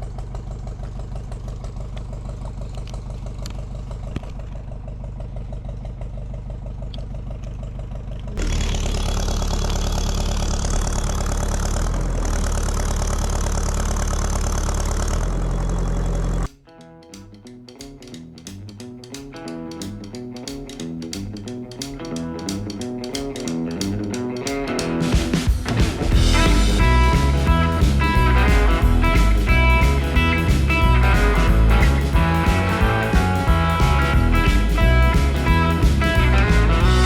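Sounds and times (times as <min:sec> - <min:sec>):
backhoe diesel engine chugging: 0:00.0 - 0:16.5, 0:26.1 - 0:37.0.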